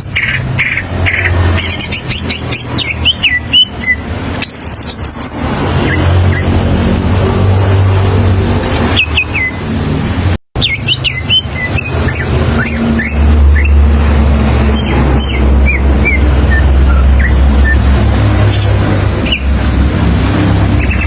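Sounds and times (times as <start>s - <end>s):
bird whistled song: 1.6s - 6.6s, 8.9s - 9.6s, 10.6s - 13.8s, 14.6s - 19.5s.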